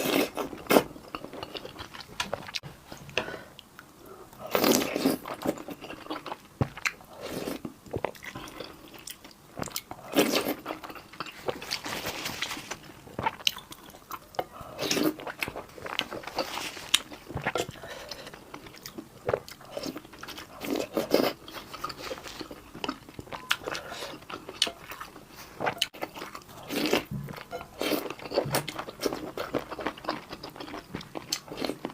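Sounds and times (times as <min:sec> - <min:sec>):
person chewing crisp food: 0:00.0 - 0:03.7, 0:04.4 - 0:31.9.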